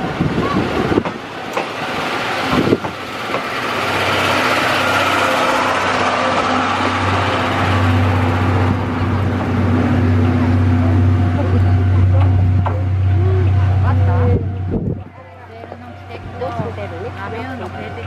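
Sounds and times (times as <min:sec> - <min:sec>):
train rumbling past: 0:00.0 - 0:18.0
low hum: 0:05.0 - 0:18.0.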